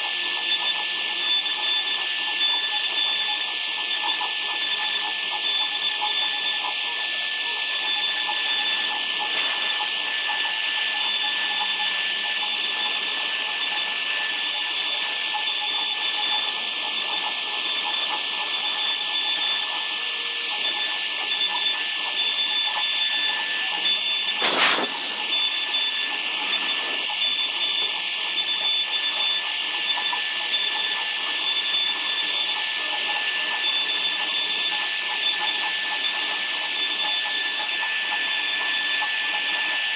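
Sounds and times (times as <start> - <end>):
woodworking power tool whining: 0.4 - 37.3
brief swish: 24.4 - 25.5.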